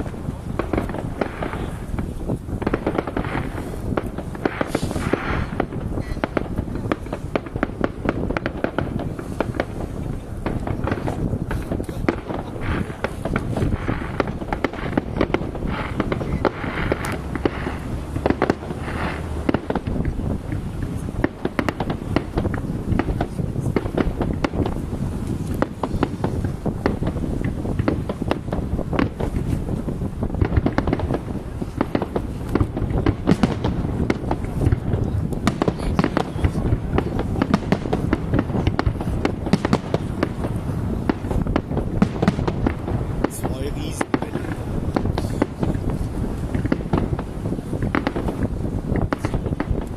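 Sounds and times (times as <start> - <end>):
fireworks bangs: 0.0 - 49.9
fireworks crackling: 0.0 - 49.9
low rumble of booms: 0.0 - 49.9.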